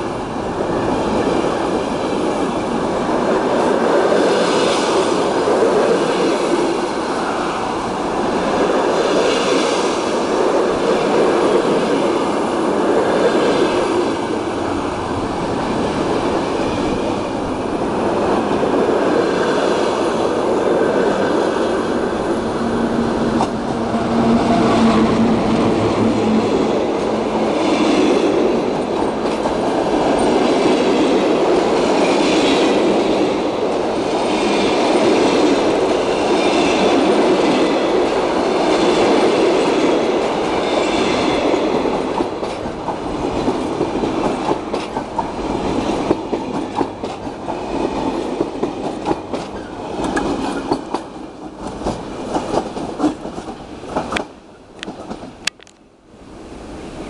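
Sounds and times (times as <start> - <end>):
train wheels rumbling on rail: 0.0 - 55.8
clickety-clack over rail joints: 26.1 - 55.8.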